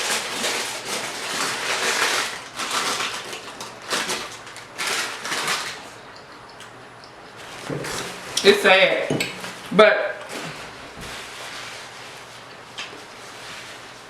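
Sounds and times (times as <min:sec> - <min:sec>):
person chewing food: 0:01.8 - 0:08.5.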